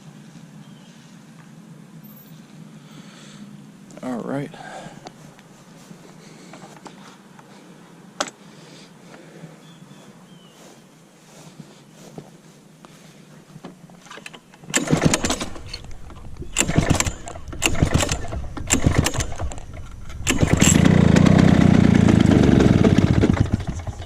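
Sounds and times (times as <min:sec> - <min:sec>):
lawn mower engine running: 0:13.8 - 0:24.0
recoil starter yanks: 0:14.1 - 0:24.0.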